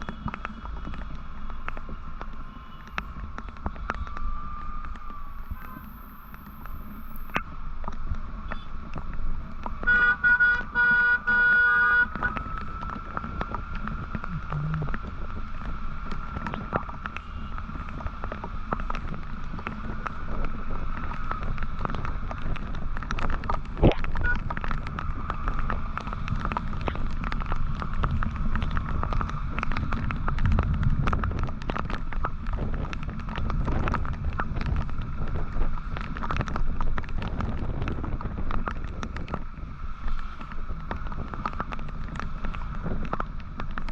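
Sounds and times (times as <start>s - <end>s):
motorcycle engine rumble: 0.0s - 43.9s
wind noise: 0.0s - 43.9s
vehicle horn honking: 9.9s - 12.4s.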